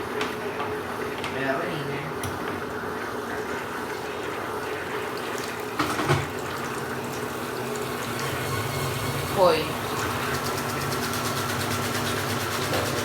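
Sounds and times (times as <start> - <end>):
water rushing into washing machine: 2.2 - 13.0.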